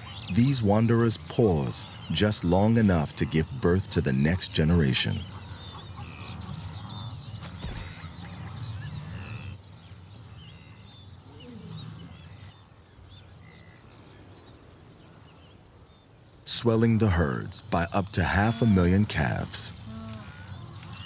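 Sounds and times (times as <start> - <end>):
birds chirping and whistling: 0.0 - 21.0
wildebeest grunting: 0.1 - 8.0, 16.5 - 21.0.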